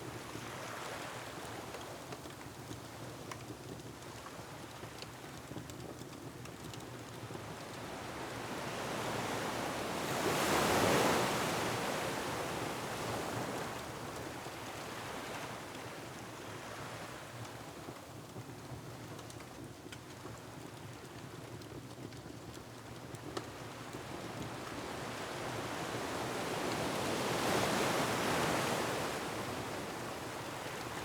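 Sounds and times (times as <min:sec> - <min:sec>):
wood fire crackling: 0:01.6 - 0:08.3, 0:17.4 - 0:24.8.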